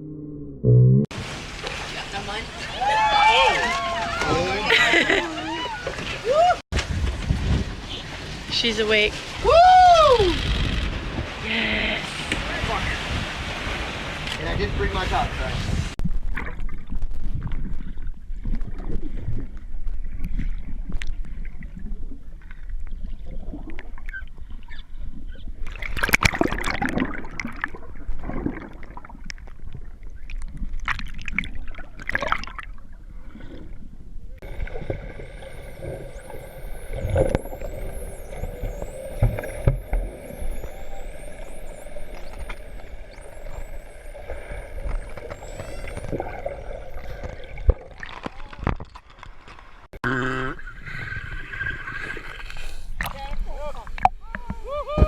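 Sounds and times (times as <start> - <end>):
water splash: 1.1 - 19.5, 25.6 - 29.8, 30.4 - 33.6, 34.4 - 49.9
water noise around boat: 1.1 - 55.0
wind noise: 5.6 - 21.0
faint high wavering whistles: 34.4 - 47.8
boat motor hum: 34.4 - 50.2.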